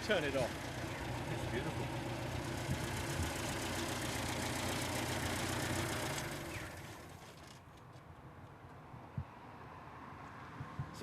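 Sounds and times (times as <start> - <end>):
car engine idling and running down: 0.0 - 7.8.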